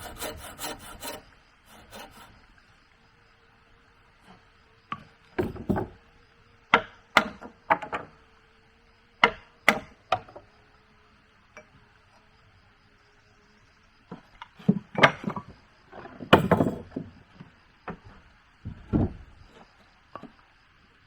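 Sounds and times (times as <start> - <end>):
hand tool knocking on wood: 5.4 - 6.0.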